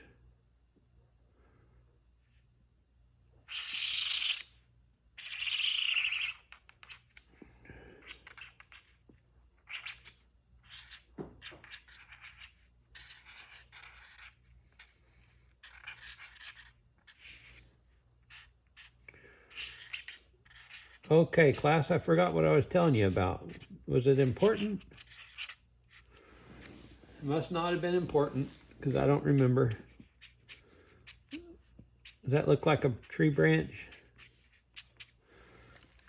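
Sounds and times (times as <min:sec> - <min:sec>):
pencil strokes scratching paper: 0:08.0 - 0:36.0.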